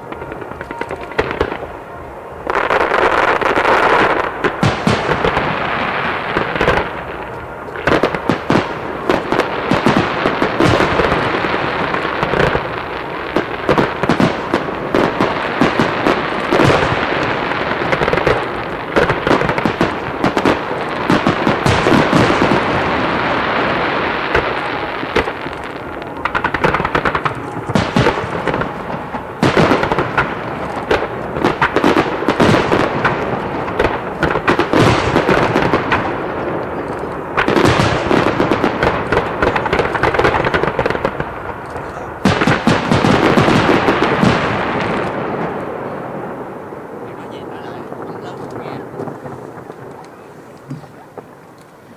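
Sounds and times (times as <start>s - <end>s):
firework booms: 0.0s - 51.9s
firework crackle: 0.0s - 51.9s.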